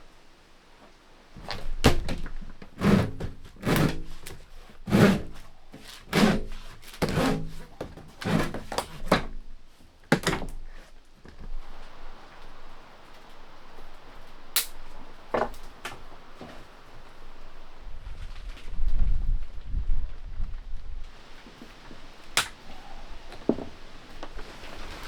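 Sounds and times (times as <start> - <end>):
dull wooden thunks and knocks: 14.3 - 17.8, 21.2 - 24.6.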